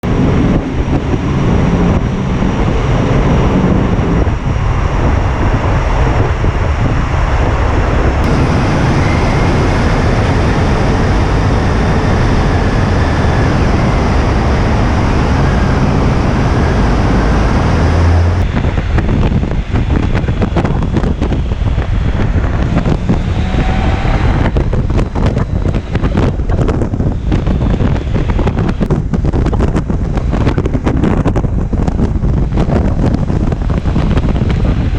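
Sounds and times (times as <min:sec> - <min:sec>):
road noise: 0:00.0 - 0:34.9
wind rushing over microphone: 0:00.0 - 0:34.9
motorcycle engine: 0:08.2 - 0:30.8.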